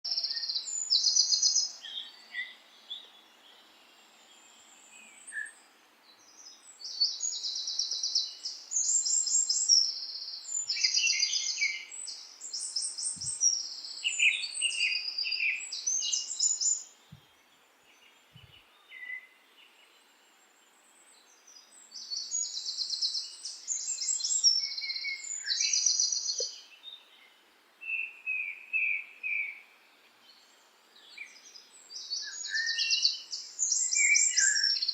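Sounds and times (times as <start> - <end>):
birds chirping: 0.1 - 34.9
faint steady hiss: 0.1 - 34.9.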